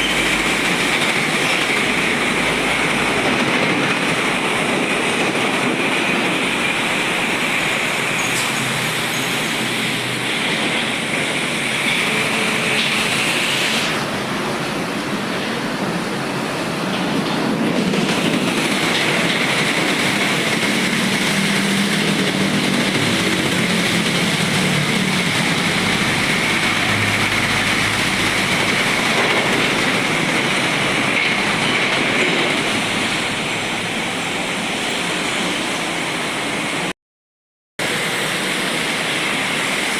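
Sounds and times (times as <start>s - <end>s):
truck engine rumble: 0.0s - 13.4s, 18.2s - 36.8s
tyres hissing on wet road: 0.0s - 17.6s, 18.2s - 36.9s, 37.8s - 39.9s.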